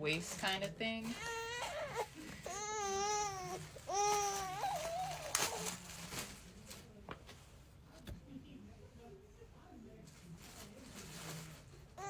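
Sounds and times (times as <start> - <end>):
infant crying: 1.1 - 5.6.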